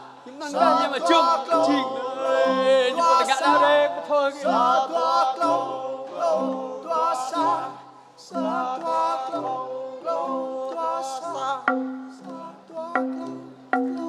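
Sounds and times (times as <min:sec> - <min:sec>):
bamboo xylophone ensemble: 0:00.0 - 0:14.0
person singing: 0:00.0 - 0:14.0.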